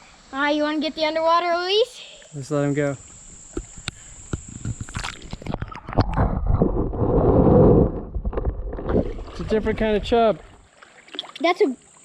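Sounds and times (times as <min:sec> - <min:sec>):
water sloshing and gurgling underwater: 0:03.4 - 0:12.0.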